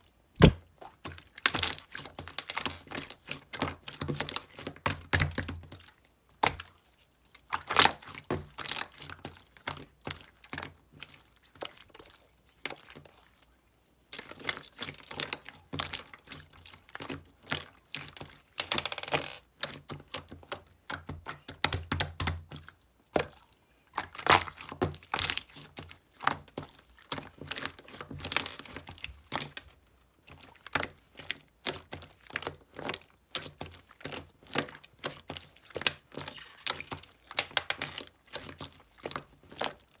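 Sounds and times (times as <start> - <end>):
beaded slime crackling and popping: 35.9 - 38.1.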